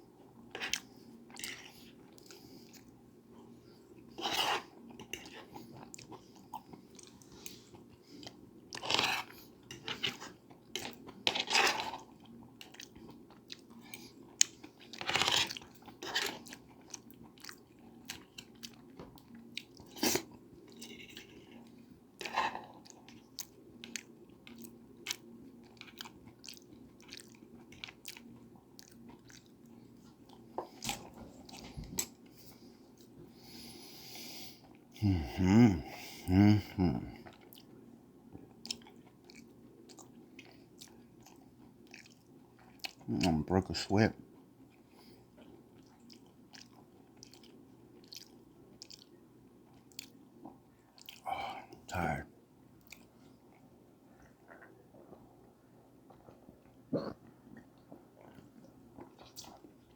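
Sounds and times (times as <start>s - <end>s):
faint low hum: 0.0s - 59.9s
person chewing and eating: 0.1s - 33.7s, 34.6s - 52.0s, 52.8s - 59.9s.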